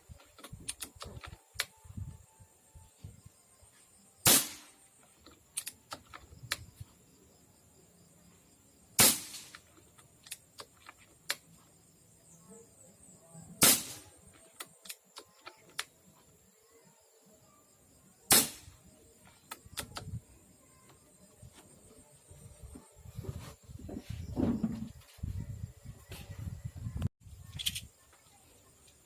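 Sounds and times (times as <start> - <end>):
air rifle shots: 4.2 - 4.8, 9.0 - 9.7, 13.6 - 14.2, 18.3 - 18.8
rifle action clicking: 5.2 - 6.6.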